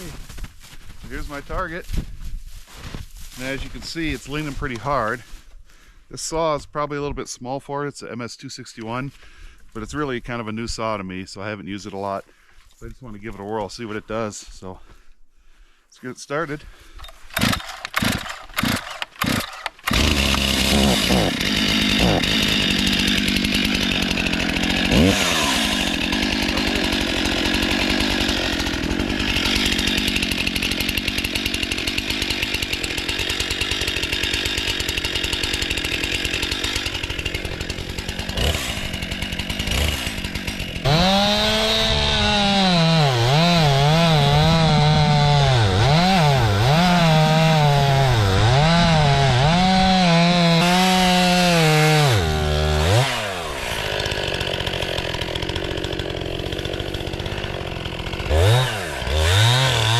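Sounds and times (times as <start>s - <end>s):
chainsaw starter pull: 17.0s - 42.4s, 48.5s - 59.9s
chainsaw running at high revs: 17.3s - 59.9s.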